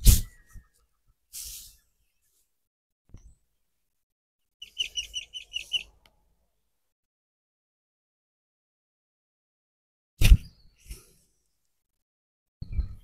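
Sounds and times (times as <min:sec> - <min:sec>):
small bird chirping: 0:04.6 - 0:06.1.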